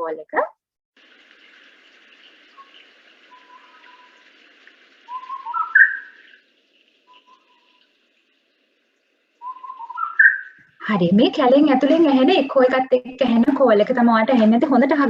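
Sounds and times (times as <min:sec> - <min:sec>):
distant bird calling: 0:02.5 - 0:04.3, 0:05.0 - 0:10.8.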